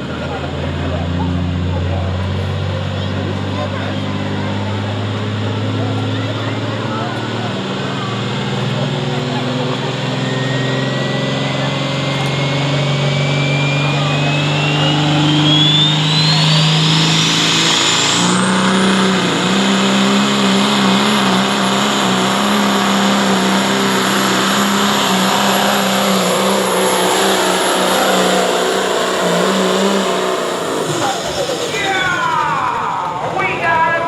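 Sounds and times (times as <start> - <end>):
diesel truck engine under load: 0.0 - 34.0
turbocharger whistle: 9.7 - 33.3.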